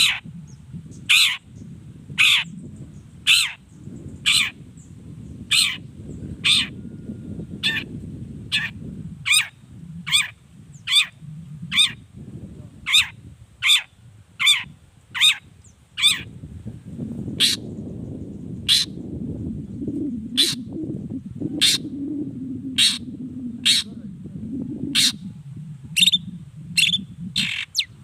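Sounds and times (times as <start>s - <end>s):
bird giving harsh calls: 0.0s - 0.2s, 1.1s - 1.4s, 2.2s - 2.5s, 3.3s - 3.6s, 4.2s - 4.6s, 5.5s - 5.8s, 6.4s - 6.8s, 7.6s - 7.9s, 8.5s - 9.5s, 10.1s - 12.0s, 12.8s - 16.3s, 17.4s - 17.7s, 18.6s - 18.9s, 20.4s - 20.7s, 21.6s - 21.9s, 22.8s - 24.0s, 25.0s - 25.2s, 26.8s - 27.9s
low rumble: 16.3s - 28.0s.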